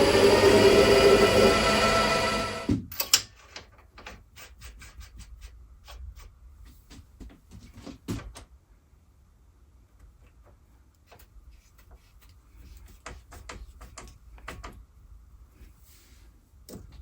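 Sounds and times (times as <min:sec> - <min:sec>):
machine tool motor running: 0:00.0 - 0:02.8
metal parts and tools clicking: 0:02.9 - 0:04.2.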